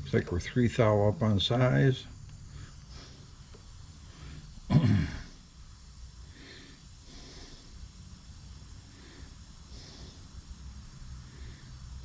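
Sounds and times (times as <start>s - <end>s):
soft breathing: 2.4s - 4.7s, 6.1s - 12.0s
person snorting: 4.7s - 5.4s.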